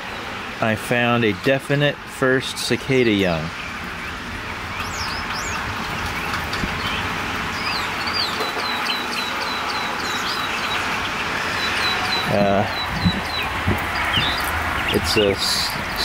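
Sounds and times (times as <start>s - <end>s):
bird chirping: 3.5s - 16.0s
steady hiss: 10.8s - 16.0s.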